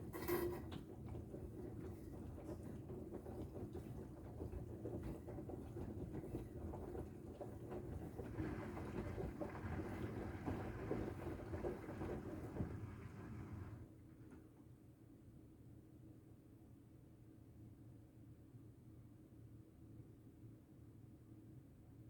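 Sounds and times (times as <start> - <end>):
washing machine drum rumbling: 0.0 - 13.8
laundry tumbling: 8.2 - 13.8.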